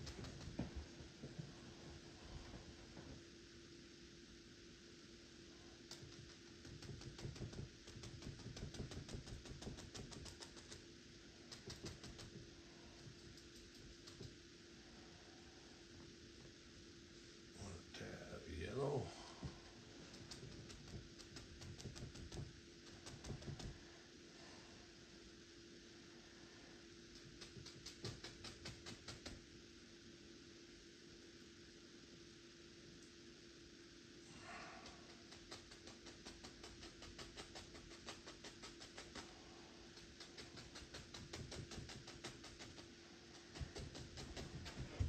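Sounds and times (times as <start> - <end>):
faint steady hum: 0.0 - 45.0
paintbrush tapping on canvas: 5.9 - 10.7, 40.0 - 45.0.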